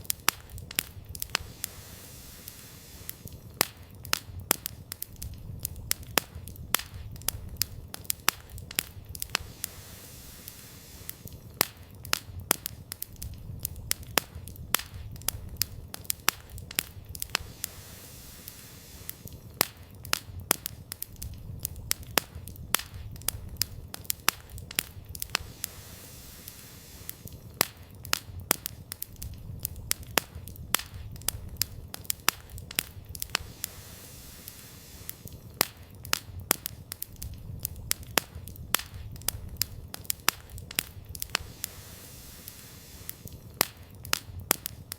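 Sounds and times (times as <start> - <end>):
campfire crackling and popping: 0.0 - 44.9.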